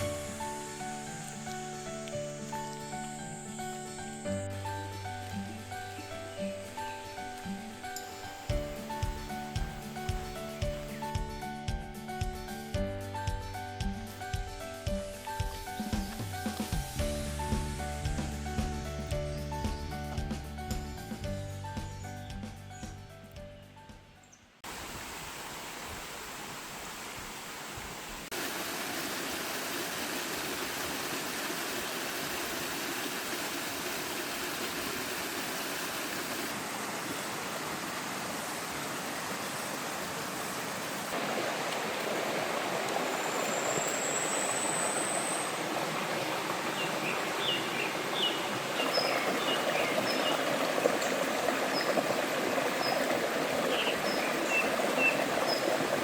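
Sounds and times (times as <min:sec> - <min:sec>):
stream and waterfall rushing: 0:00.0 - 0:12.7, 0:24.6 - 0:56.0.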